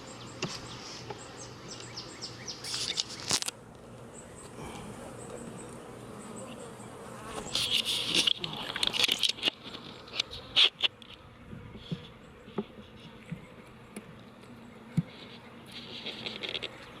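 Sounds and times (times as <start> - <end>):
bees buzzing: 0.0 - 17.0
scraping and rustling handling noise: 7.3 - 11.2, 14.4 - 17.0.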